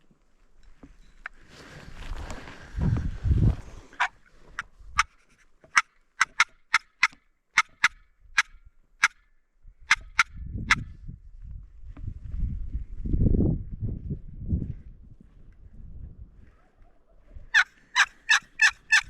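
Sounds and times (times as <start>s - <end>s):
turkey call yelps: 17.5s - 19.0s.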